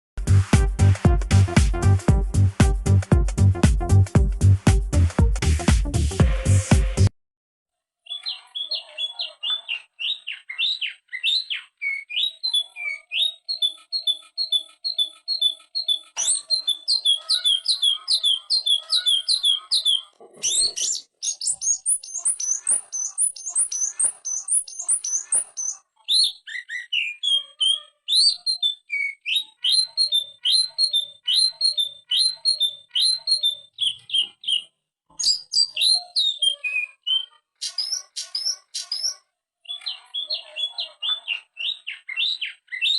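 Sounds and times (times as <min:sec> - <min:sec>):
bird singing whistled notes: 0:08.1 - 0:42.9
harsh bird notes with clicks: 0:09.6 - 0:40.4.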